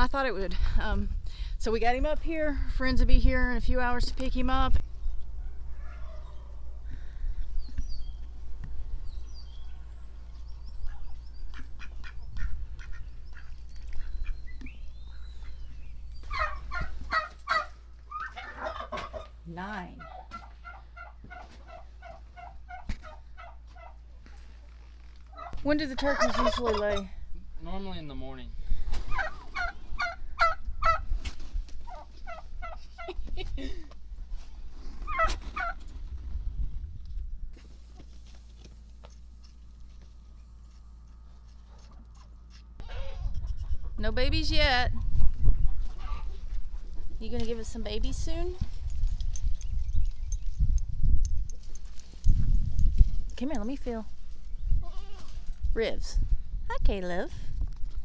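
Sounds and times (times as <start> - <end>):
steady low rumble: 0.0 - 24.6, 35.6 - 58.0
turkeys gobbling: 5.3 - 7.2, 9.7 - 24.4, 25.3 - 27.1, 28.9 - 33.3, 35.0 - 36.0, 39.0 - 44.0, 45.7 - 47.2
poultry pulsed calls: 9.1 - 19.4.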